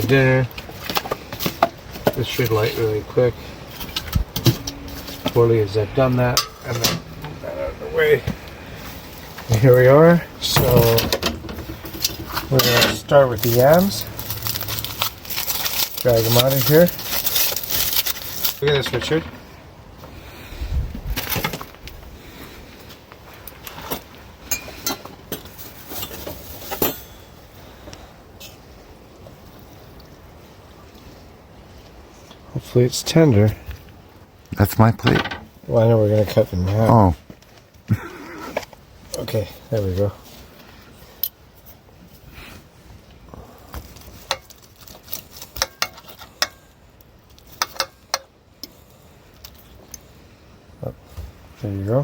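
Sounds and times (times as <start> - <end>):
metal utensils clinking on cookware: 6.3 - 7.1, 10.4 - 17.6, 18.2 - 19.3, 24.5 - 25.1, 45.5 - 46.6.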